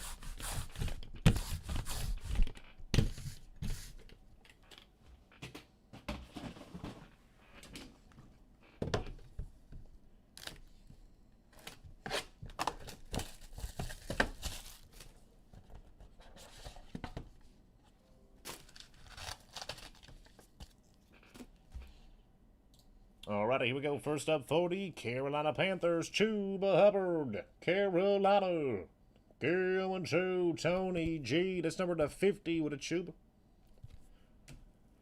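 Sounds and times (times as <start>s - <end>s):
card packs being torn open: 18.4s - 20.8s
wrappers crinkling: 18.4s - 21.4s.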